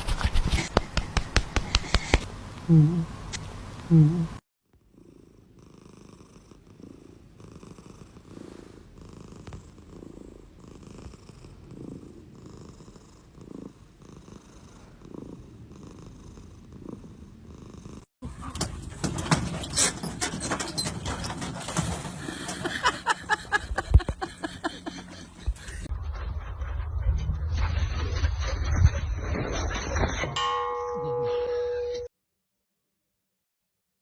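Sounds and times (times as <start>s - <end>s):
cat purring: 2.6s - 3.2s, 3.8s - 18.1s.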